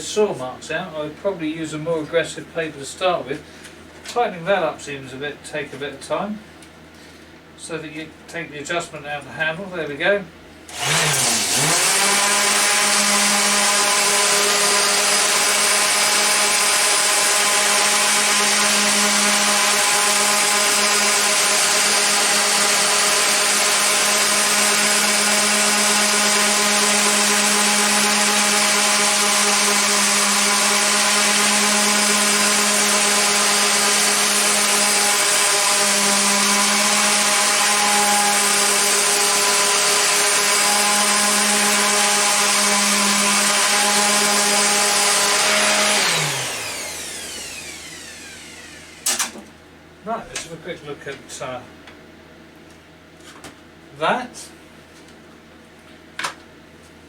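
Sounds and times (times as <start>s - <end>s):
orbital sander sanding wood: 10.7s - 49.0s.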